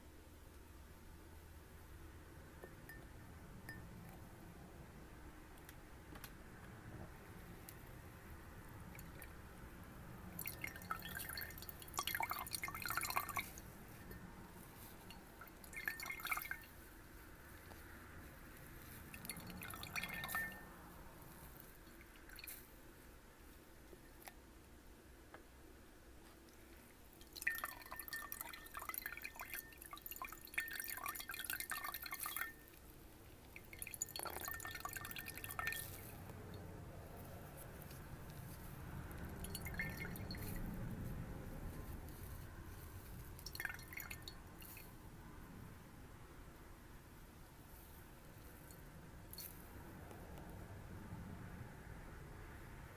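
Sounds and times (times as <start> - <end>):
water dripping in a glass: 8.9 - 9.4, 10.3 - 16.9, 18.8 - 20.8, 21.7 - 22.7, 27.1 - 36.7, 39.1 - 40.7, 43.4 - 45.0.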